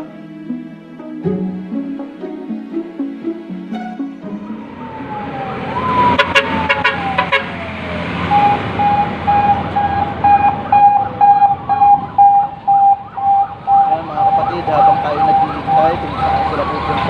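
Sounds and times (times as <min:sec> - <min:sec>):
siren wailing: 0:00.0 - 0:17.0
traffic noise: 0:00.0 - 0:17.0
pulsing siren tone: 0:02.2 - 0:17.0
rising siren yelps: 0:02.2 - 0:17.0
short sharp siren blips: 0:03.7 - 0:17.0.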